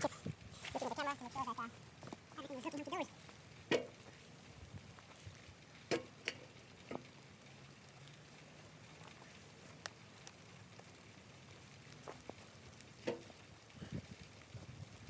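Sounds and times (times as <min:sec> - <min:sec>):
light rain patter: 0:00.0 - 0:15.0.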